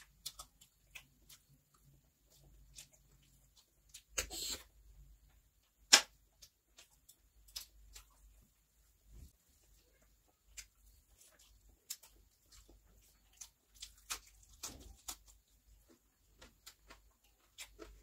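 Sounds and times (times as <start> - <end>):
chewing with mouth clicks: 0.0 - 4.5, 9.6 - 18.0.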